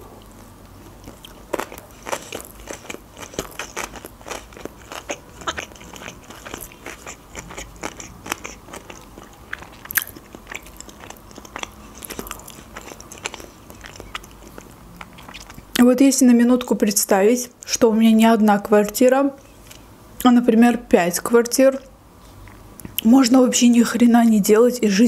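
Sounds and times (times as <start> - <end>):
chewing with wet mouth sounds: 0.2 - 15.9
mouth clicks and smacks: 1.2 - 15.8.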